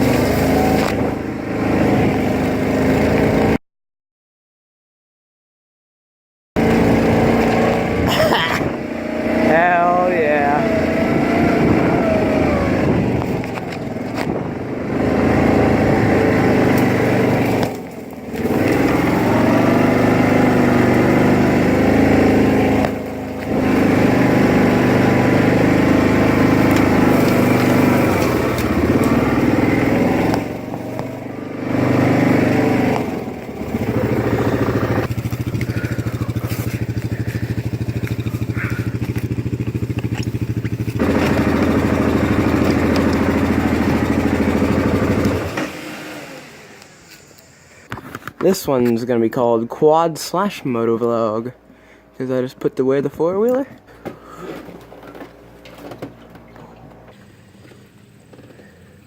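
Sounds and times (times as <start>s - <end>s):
atv engine running under load: 0.0s - 3.6s, 6.6s - 48.4s, 53.7s - 59.0s.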